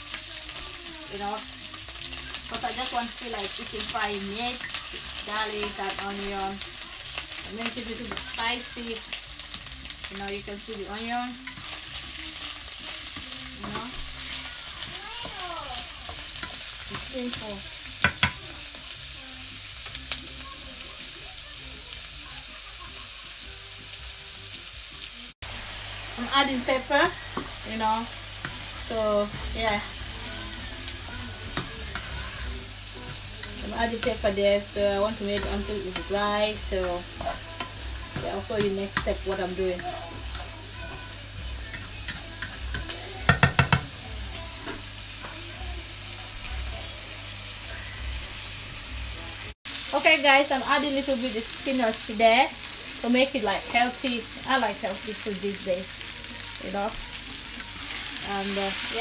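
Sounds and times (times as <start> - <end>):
meat frying in pan: 0.0 - 59.0
spatula knocking against pan: 41.7 - 43.9.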